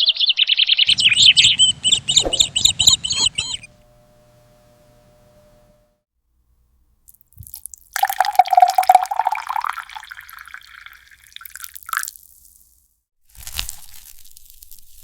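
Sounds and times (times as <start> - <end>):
water pouring and splashing: 7.3 - 12.8.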